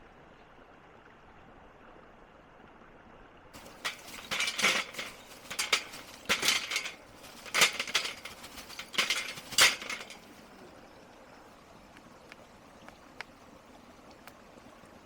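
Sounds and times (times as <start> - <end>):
charcoal clinking and crunching: 3.6 - 10.4.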